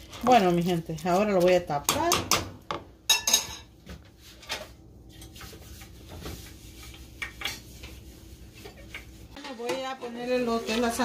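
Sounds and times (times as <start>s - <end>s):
metal cookware clinking on pot: 3.1s - 3.7s.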